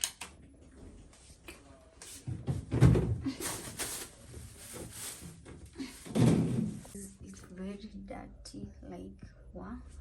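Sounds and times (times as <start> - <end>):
rustling and scraping: 2.0 - 7.0.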